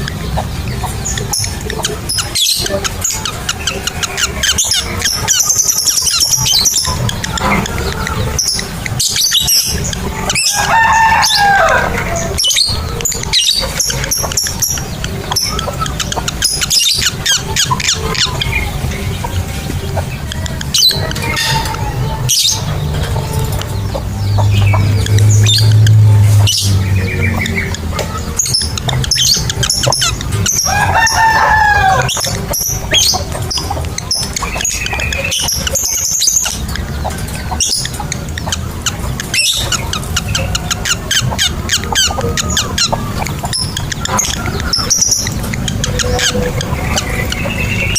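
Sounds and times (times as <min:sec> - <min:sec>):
background music: 0:00.0 - 0:47.9
lovebirds chirping shrilly: 0:00.0 - 0:47.9.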